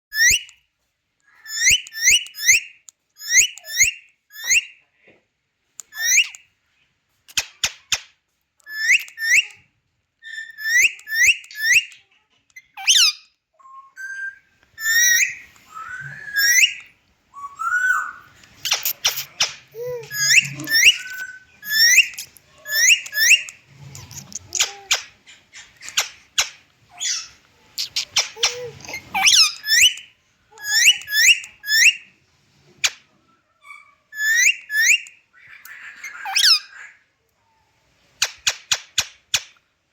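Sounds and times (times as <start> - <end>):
parakeet whistled calls: 13.8 - 18.2, 19.1 - 23.5
scratchy noises: 18.3 - 26.3.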